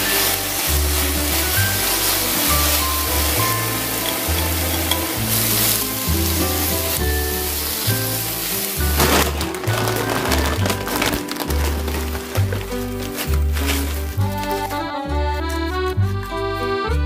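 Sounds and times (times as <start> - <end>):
fish skin sizzling in a pan: 0.0 - 12.8
wooden spatula stirring: 0.0 - 14.7
background music with bass line: 0.0 - 17.0.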